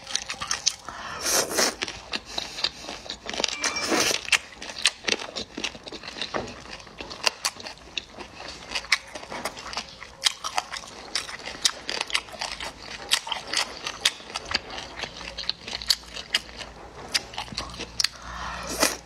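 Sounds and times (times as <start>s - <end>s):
wet chewing with mouth clicks: 0.0s - 19.0s
sucking sounds: 18.1s - 19.0s.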